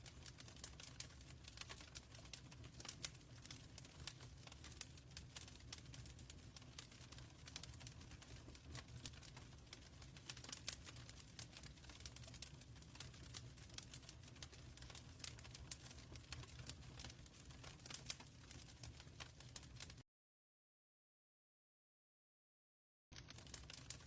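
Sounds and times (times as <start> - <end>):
low rumble of flames: 0.0 - 20.0, 23.2 - 24.0
wood fire popping and snapping: 0.0 - 20.0, 23.2 - 24.0.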